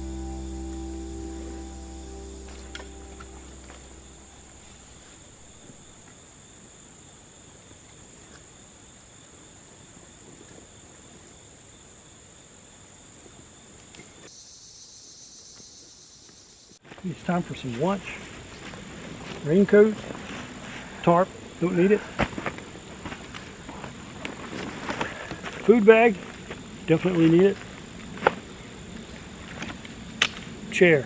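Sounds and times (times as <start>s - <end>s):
background music: 0.0s - 4.8s
crickets and insects chirping: 0.0s - 31.0s.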